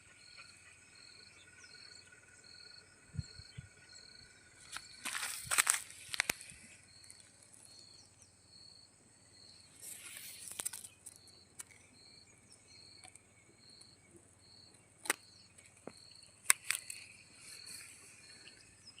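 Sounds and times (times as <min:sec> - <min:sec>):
faint insect hiss: 0:00.0 - 0:19.0
insect chirping: 0:00.0 - 0:19.0
rustle: 0:04.6 - 0:08.0, 0:09.6 - 0:11.9, 0:15.5 - 0:19.0
sharp clicks: 0:15.0 - 0:17.1.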